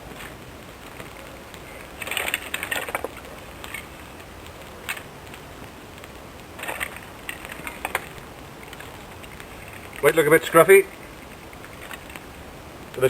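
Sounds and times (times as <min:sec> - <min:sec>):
kindling sticks clicking and knocking: 0:00.1 - 0:12.3.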